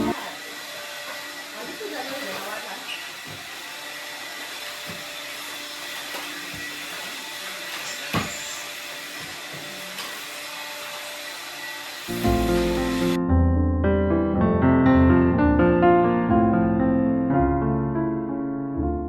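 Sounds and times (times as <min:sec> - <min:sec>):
vacuum cleaner running: 0:00.0 - 0:13.2.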